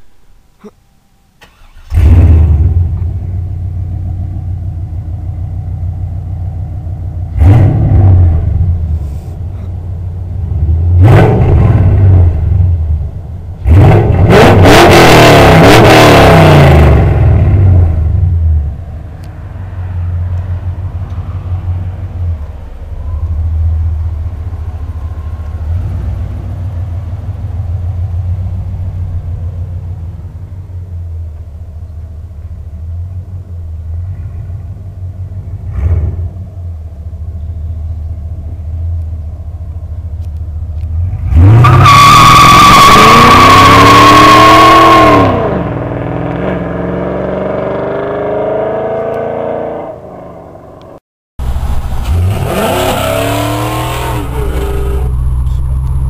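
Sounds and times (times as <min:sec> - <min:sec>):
car engine revving and idling: 0:01.4 - 0:56.0.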